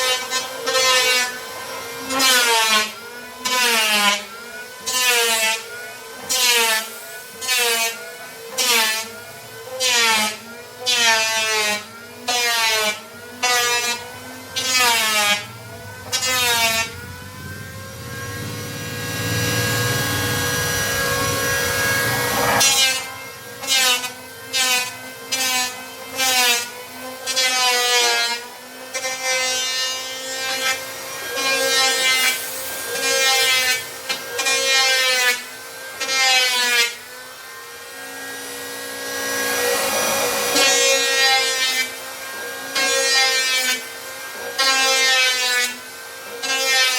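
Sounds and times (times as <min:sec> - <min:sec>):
hand saw cutting plywood: 0:00.0 - 0:46.9
steady hum: 0:15.4 - 0:23.6.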